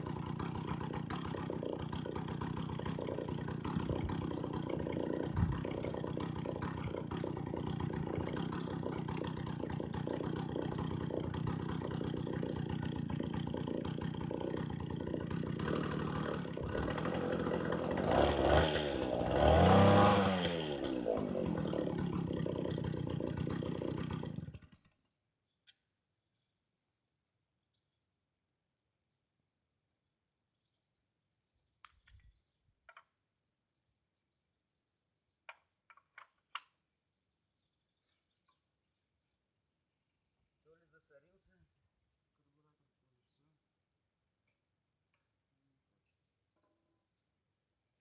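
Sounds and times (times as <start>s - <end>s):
chainsaw engine revving: 0.0s - 25.0s.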